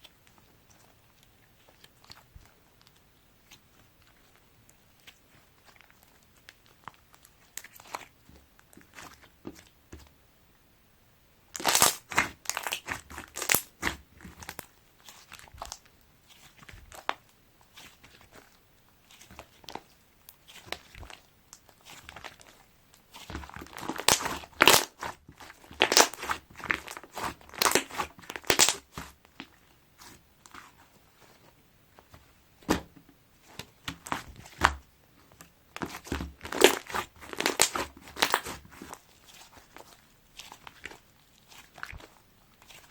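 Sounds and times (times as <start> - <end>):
slime squeezed by hand: 11.6 - 21.2, 21.8 - 31.4, 35.8 - 42.9.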